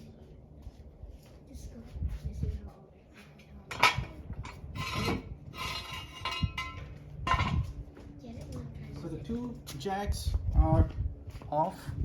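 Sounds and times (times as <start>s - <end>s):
metal scraping with ring: 3.7s - 7.7s.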